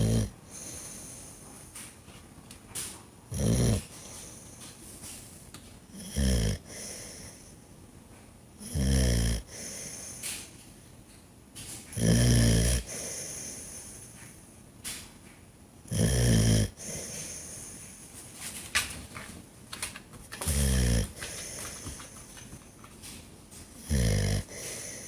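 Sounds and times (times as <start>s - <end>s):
dog snoring: 0.0s - 1.2s, 3.3s - 4.4s, 5.9s - 7.5s, 8.6s - 10.4s, 11.9s - 14.1s, 15.9s - 17.8s, 20.4s - 22.4s, 23.8s - 25.0s
dog breathing: 0.0s - 1.9s, 3.3s - 5.2s, 6.6s - 7.6s, 9.4s - 10.5s, 12.7s - 14.4s, 16.6s - 18.1s, 20.3s - 23.0s, 23.8s - 25.0s.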